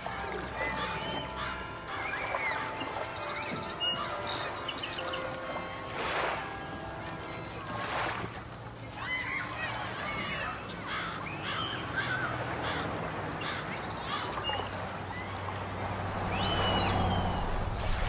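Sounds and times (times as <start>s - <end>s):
birds calling: 0.0s - 18.0s
steady rushing noise: 15.0s - 18.0s.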